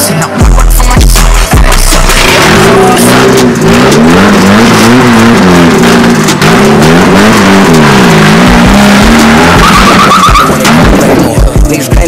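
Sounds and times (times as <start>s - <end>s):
car engine revving: 0.0s - 12.0s
low thumps: 3.5s - 12.0s
pulsing tone: 5.9s - 11.6s.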